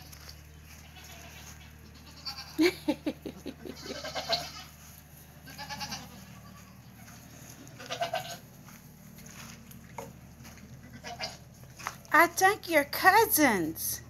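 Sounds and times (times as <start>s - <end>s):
steady low hum: 0.0s - 14.0s
goats bleating: 0.7s - 2.8s, 3.6s - 8.5s, 10.8s - 11.5s.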